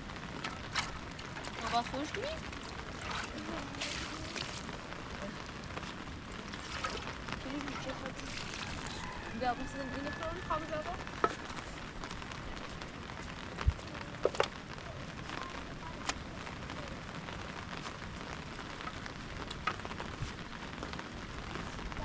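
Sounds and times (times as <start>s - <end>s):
rain pattering: 0.0s - 22.0s
sharp clicks and drips: 0.3s - 10.5s.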